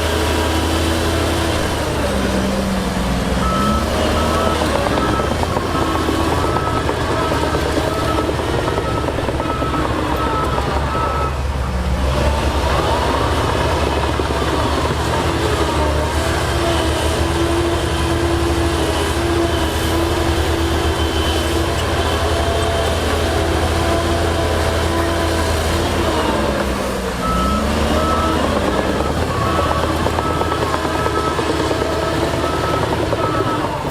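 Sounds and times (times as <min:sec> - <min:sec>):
heavy machinery diesel drone: 0:00.0 - 0:33.9
reversing alarm beeping: 0:03.3 - 0:11.7, 0:12.5 - 0:22.9, 0:27.2 - 0:33.9.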